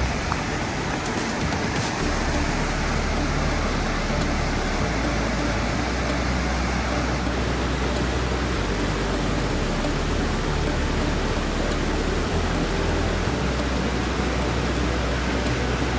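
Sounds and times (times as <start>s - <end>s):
water rushing: 0.0s - 15.9s.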